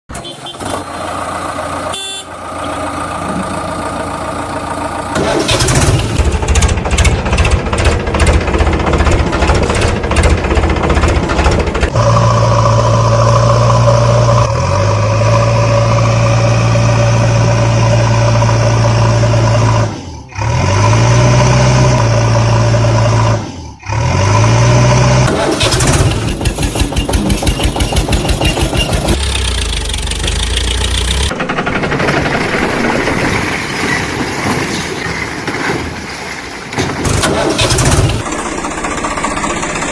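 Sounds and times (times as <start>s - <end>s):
diesel engine running under work: 0.2s - 34.6s, 36.6s - 39.9s.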